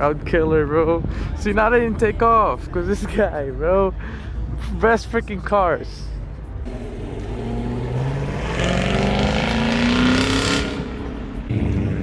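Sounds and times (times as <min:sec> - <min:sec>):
car engine accelerating: 0:06.6 - 0:12.0.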